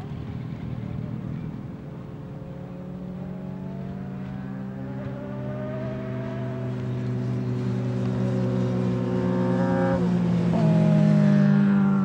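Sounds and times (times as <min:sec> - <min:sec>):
racing motorcycle engines running: 0:00.0 - 0:12.0
motorcycle engine revving up: 0:02.4 - 0:12.0.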